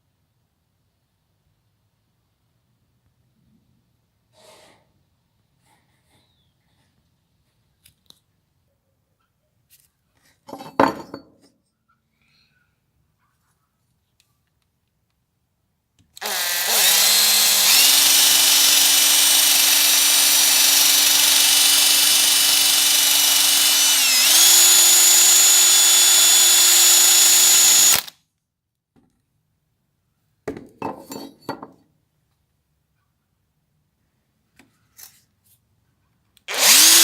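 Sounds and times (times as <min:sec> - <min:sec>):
power tool motor whining: 0:16.2 - 0:28.1, 0:36.5 - 0:37.0.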